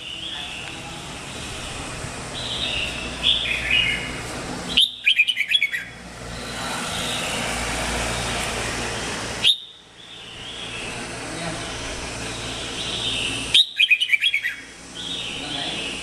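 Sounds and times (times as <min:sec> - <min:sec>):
steady background hiss: 0:00.0 - 0:16.0
bird singing whistled notes: 0:04.7 - 0:07.4, 0:09.4 - 0:11.0, 0:12.3 - 0:16.0.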